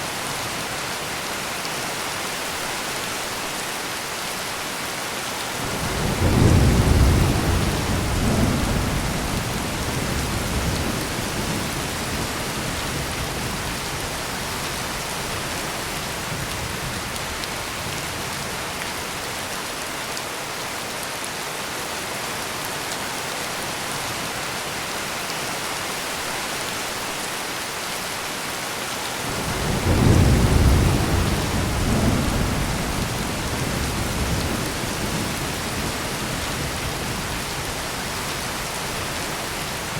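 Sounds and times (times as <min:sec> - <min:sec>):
heavy rain: 0:00.0 - 0:39.9
low thunder rolling: 0:05.7 - 0:13.6, 0:29.3 - 0:36.0.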